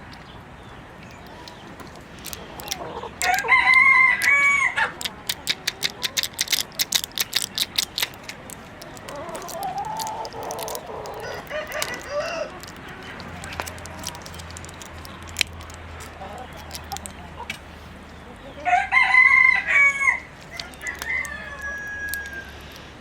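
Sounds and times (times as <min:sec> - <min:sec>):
rapid sharp clicks: 0:01.0 - 0:17.6
hens clucking: 0:01.0 - 0:23.0
rooster crowing: 0:03.2 - 0:04.9, 0:11.1 - 0:12.6, 0:18.6 - 0:22.8.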